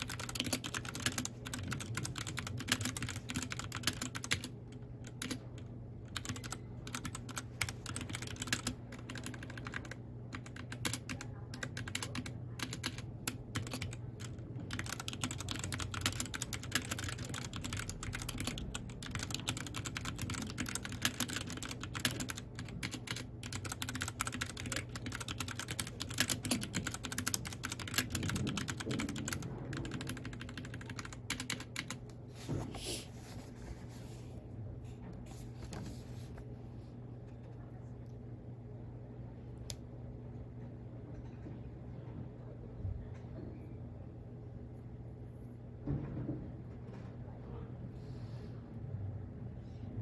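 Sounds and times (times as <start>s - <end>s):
mechanical keyboard typing: 0.0s - 32.0s
steady low hum: 0.0s - 50.0s.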